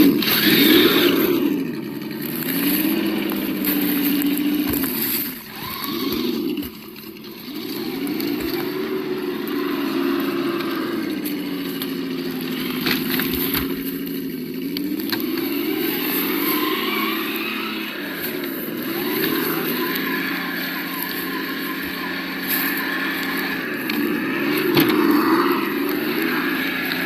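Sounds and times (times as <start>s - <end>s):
simulated engine sound: 0.0s - 27.0s.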